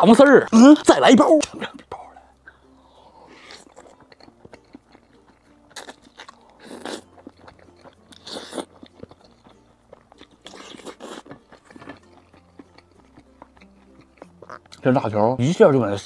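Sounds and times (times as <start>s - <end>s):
chewing rice: 2.4s - 15.0s.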